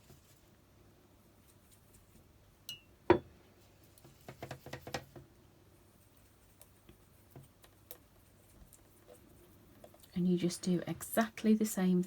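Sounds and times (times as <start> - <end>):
paintbrush clinking glass jar: 2.7 - 3.3.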